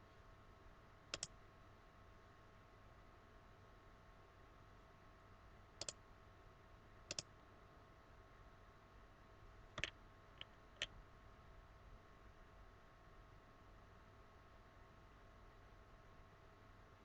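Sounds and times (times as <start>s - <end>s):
faint electrical hum: 0.0s - 17.0s
computer mouse clicking: 1.1s - 1.4s, 5.8s - 6.0s, 7.1s - 7.3s, 9.8s - 10.9s.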